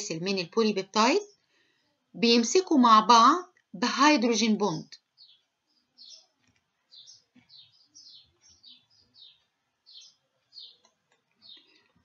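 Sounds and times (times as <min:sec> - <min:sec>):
small bird chirping: 0:05.0 - 0:12.0.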